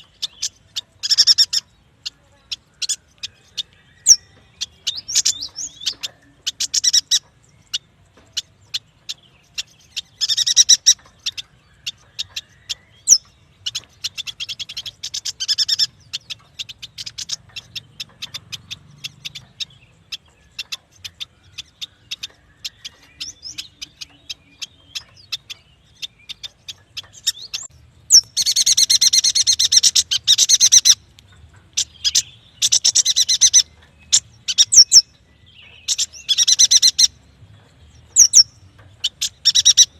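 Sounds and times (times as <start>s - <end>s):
bird ticking and chattering trills: 0.0s - 39.9s.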